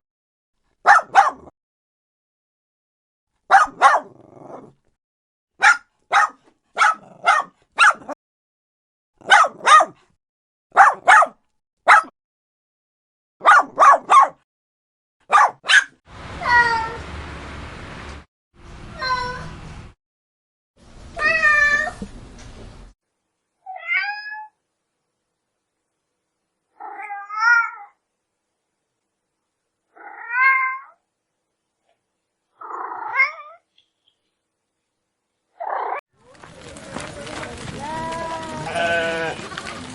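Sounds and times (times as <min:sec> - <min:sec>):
dog barking: 0:00.8 - 0:01.5, 0:03.5 - 0:04.6, 0:05.6 - 0:08.2, 0:09.2 - 0:10.1, 0:10.7 - 0:12.2, 0:13.4 - 0:14.4, 0:15.2 - 0:16.0
cat meowing: 0:23.6 - 0:24.6, 0:26.7 - 0:28.0, 0:29.9 - 0:31.0, 0:32.6 - 0:33.7.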